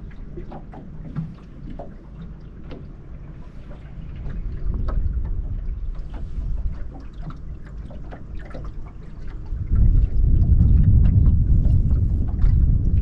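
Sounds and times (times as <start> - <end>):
small clicks around boat: 0.0 - 13.0
water lapping: 0.0 - 13.0
wind buffeting microphone: 4.2 - 13.0.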